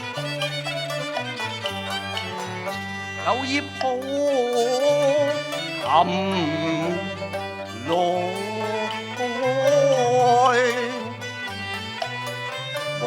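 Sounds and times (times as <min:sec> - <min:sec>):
instrumental accompaniment: 0:00.0 - 0:13.0
person singing opera: 0:03.1 - 0:11.2.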